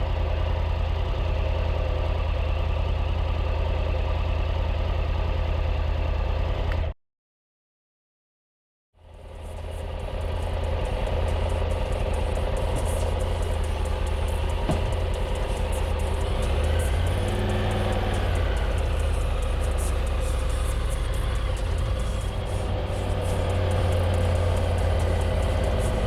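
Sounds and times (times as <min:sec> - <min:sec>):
motorcycle engine running: 0:00.0 - 0:06.9, 0:09.0 - 0:26.0
wind and road noise: 0:09.0 - 0:26.0.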